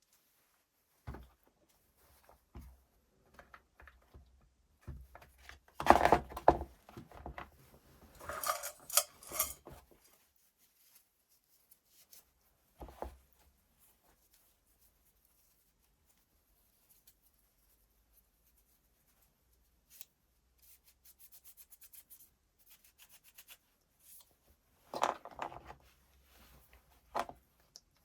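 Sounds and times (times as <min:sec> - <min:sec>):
parts clattering: 0:08.1 - 0:10.0
metallic rattling: 0:08.2 - 0:09.6
small parts clicking and knocking: 0:08.2 - 0:09.7.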